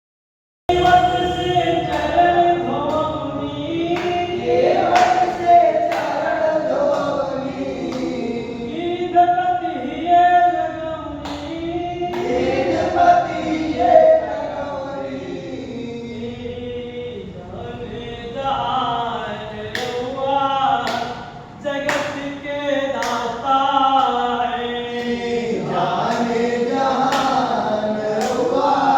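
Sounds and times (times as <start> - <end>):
sharp claps: 0.7 - 8.2, 11.2 - 12.7, 19.7 - 20.1, 20.8 - 23.4, 26.0 - 28.6
group singing devotional song: 0.7 - 28.9.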